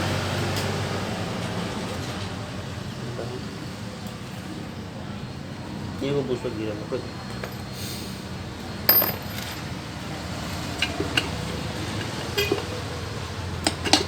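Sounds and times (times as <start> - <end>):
metal tools clinking: 8.9 - 9.8, 10.5 - 12.9, 13.6 - 14.0.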